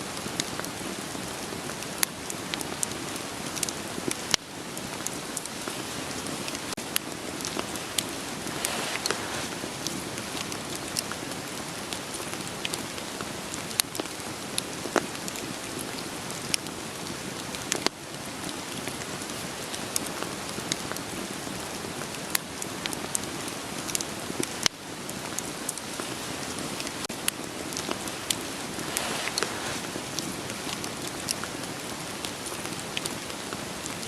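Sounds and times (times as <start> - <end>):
steady rain hiss: 0.0 - 34.0
wood fire crackling: 0.1 - 34.0.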